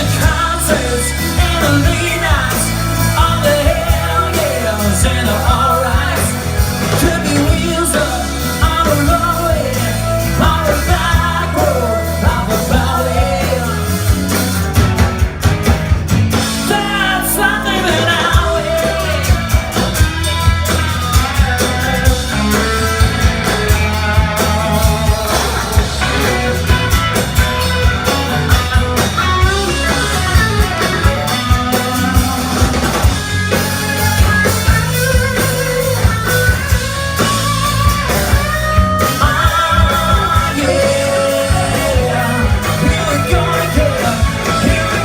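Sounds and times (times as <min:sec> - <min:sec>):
lead guitar lines: 0:00.0 - 0:45.0
rock band playing: 0:00.0 - 0:45.0.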